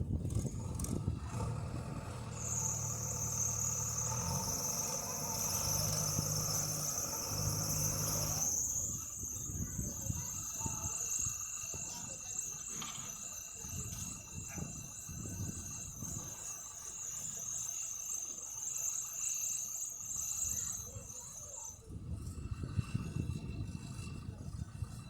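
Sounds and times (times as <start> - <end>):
insects chirring: 2.2 - 21.8.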